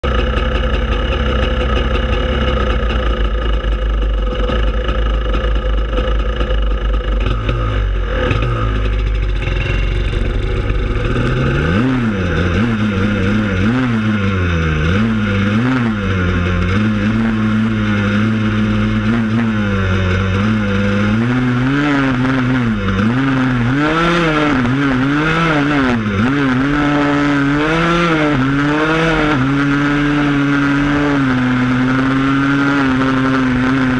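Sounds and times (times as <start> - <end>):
atv engine revving: 0.0 - 33.9.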